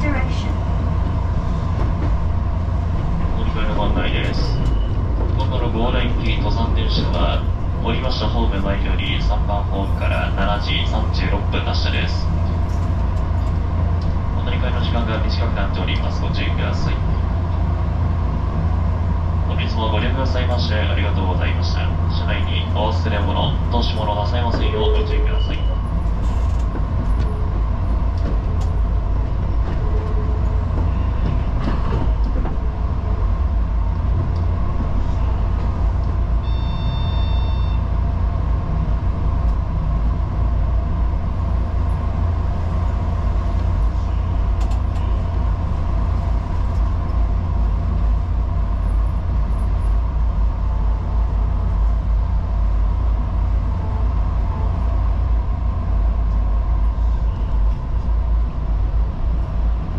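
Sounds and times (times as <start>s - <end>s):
train wheels rumbling on rails: 0.0s - 59.9s
brief high ringing tone: 36.4s - 37.9s.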